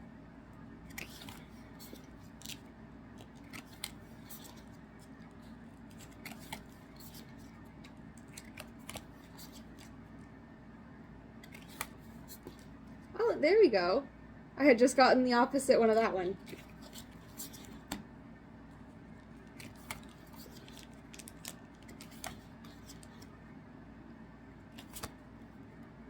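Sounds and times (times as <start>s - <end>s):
cards clicking and sliding: 0.8s - 10.0s, 11.4s - 12.7s, 16.4s - 18.1s, 19.4s - 23.3s, 24.7s - 25.3s.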